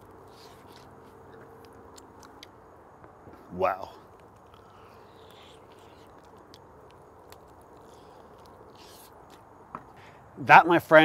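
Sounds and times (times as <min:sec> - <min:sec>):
faint chewing: 0:00.0 - 0:02.6, 0:03.4 - 0:09.6
soft mouth clicks: 0:04.1 - 0:09.4.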